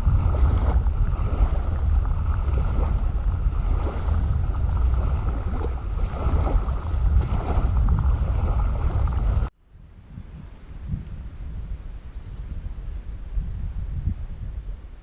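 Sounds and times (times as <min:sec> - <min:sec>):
water splashing against kayak: 0:00.0 - 0:09.5
wind buffeting microphone: 0:00.0 - 0:15.0.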